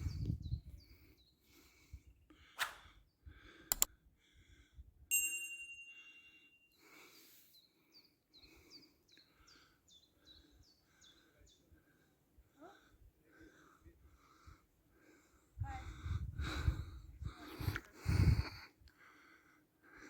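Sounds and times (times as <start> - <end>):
small songbirds singing: 0.0 - 2.0, 6.7 - 12.1
ringing ding: 5.1 - 6.7.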